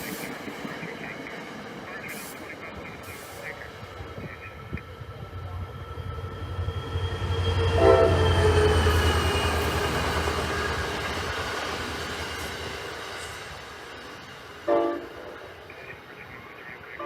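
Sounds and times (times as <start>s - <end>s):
train passing with deep rumble: 0.0s - 17.0s
train horn blast: 7.3s - 10.9s, 14.7s - 15.4s.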